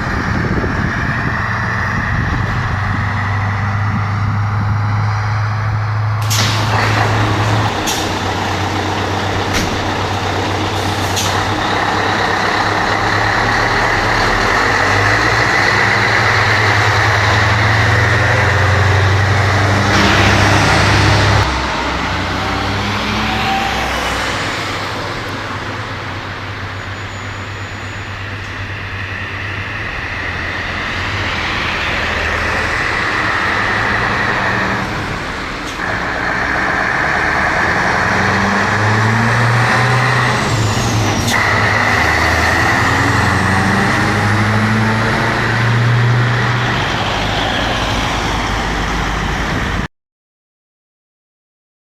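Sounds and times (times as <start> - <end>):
diesel engine running: 0.0 - 49.8.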